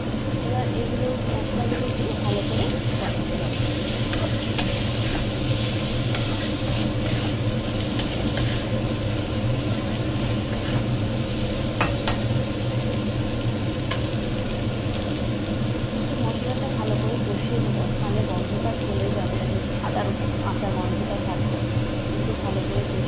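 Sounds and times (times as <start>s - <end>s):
potatoes sizzling in oil: 0.0s - 23.0s
metal spoon scraping pan: 1.6s - 8.8s, 9.6s - 10.9s.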